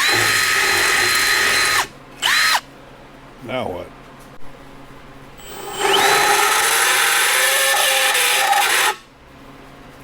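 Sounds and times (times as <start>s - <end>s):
electric drill grinding into metal: 0.0s - 2.6s, 5.4s - 9.0s.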